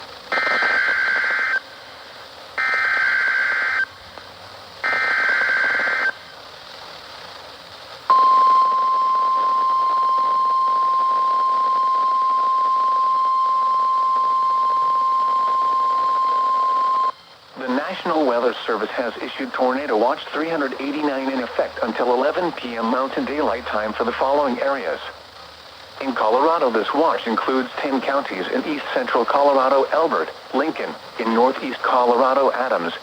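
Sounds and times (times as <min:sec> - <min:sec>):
faint radio static: 0:00.0 - 0:33.0
steady warning alarm tone: 0:02.6 - 0:03.9, 0:04.8 - 0:06.2, 0:08.1 - 0:17.2
buzzy two-tone data bursts: 0:04.8 - 0:06.2, 0:08.1 - 0:25.0.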